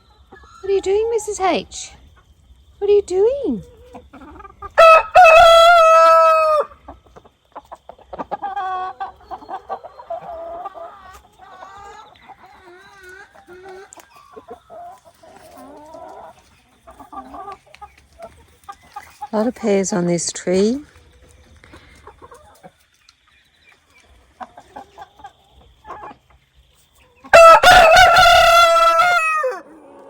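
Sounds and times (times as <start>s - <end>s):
hens clucking: 0.0s - 30.0s
rooster crowing: 4.8s - 6.8s, 27.3s - 29.7s.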